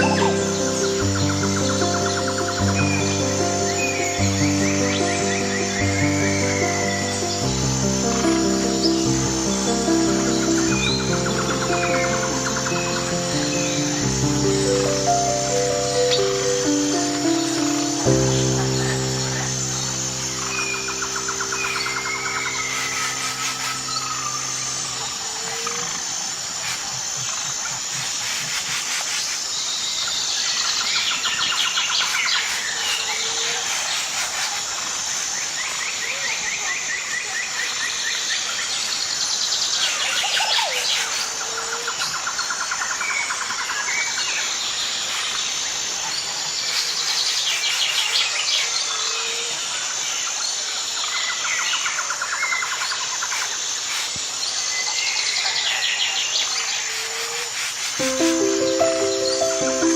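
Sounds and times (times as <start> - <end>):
birds singing: 0.0 - 25.6
high-pitched insect drone: 0.0 - 29.4.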